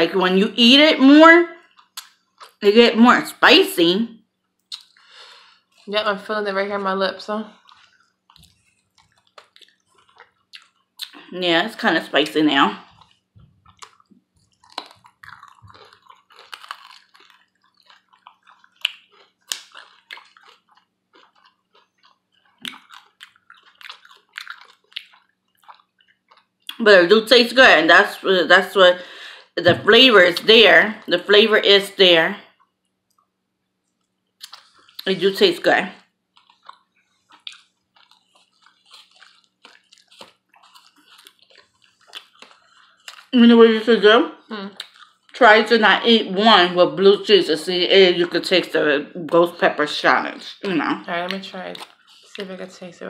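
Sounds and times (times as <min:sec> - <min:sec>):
chewing and lip-smacking: 0:01.6 - 0:02.6, 0:04.6 - 0:06.0, 0:07.5 - 0:11.3, 0:12.8 - 0:26.8, 0:33.9 - 0:35.1, 0:36.3 - 0:43.4, 0:44.7 - 0:45.4, 0:51.3 - 0:52.5.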